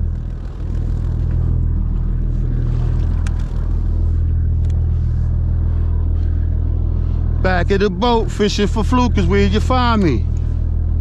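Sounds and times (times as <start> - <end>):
boat engine droning: 0.0 - 11.0
small clicks: 2.8 - 3.7, 4.5 - 4.8.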